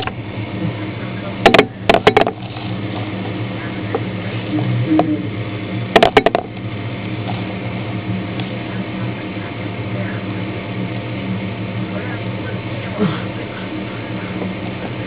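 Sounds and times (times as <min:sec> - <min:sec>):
steady low hum: 0:00.0 - 0:15.0
sharp knocks: 0:06.0 - 0:06.5.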